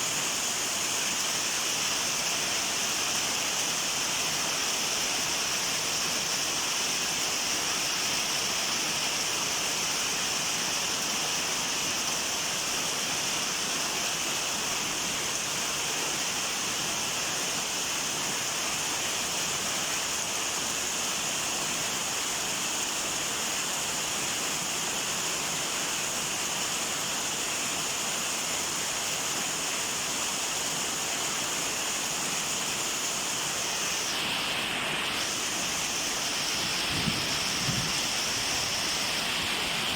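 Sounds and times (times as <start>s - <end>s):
heavy rain falling: 33.4s - 39.9s.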